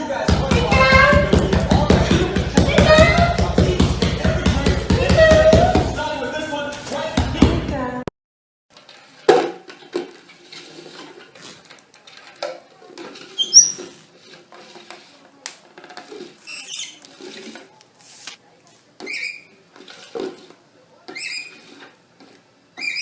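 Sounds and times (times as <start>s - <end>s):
parrot squeaks: 13.4s - 13.8s, 16.4s - 17.0s, 19.0s - 19.5s, 21.1s - 21.6s, 22.8s - 23.0s.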